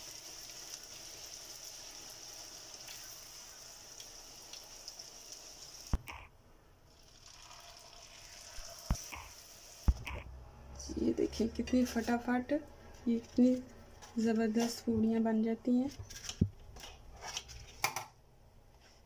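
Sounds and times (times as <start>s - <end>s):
food deep-frying in oil: 0.0s - 6.0s, 6.9s - 9.9s.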